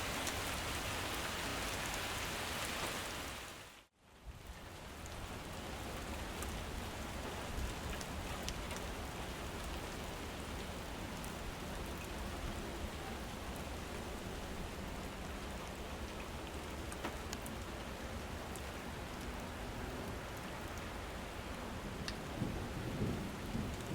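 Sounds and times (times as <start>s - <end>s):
heavy rain hissing: 0.0s - 3.8s.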